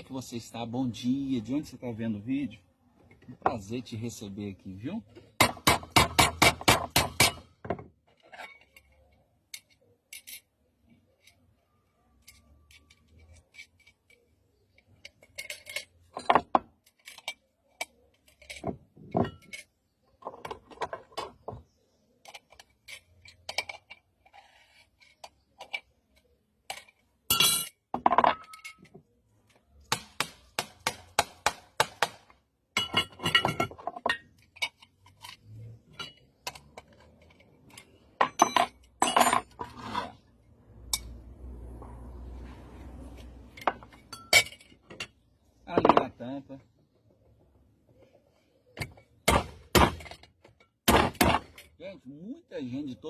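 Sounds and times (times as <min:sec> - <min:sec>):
metal clinks and knocks: 0:12.2 - 0:21.6, 0:22.2 - 0:29.0, 0:32.7 - 0:41.4, 0:43.1 - 0:46.2.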